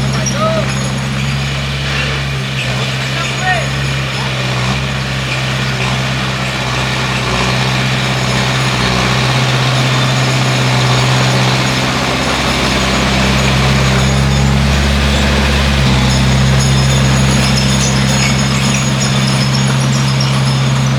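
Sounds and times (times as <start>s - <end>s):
bulldozer diesel engine running: 0.0s - 20.9s.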